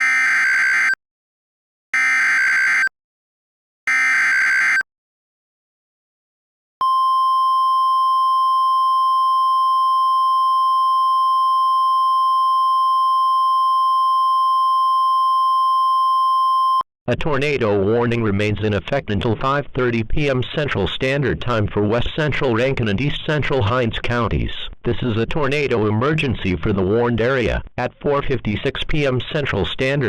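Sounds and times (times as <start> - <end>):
steady warning alarm tone: 0.0 - 1.0, 2.0 - 2.9, 3.9 - 4.8.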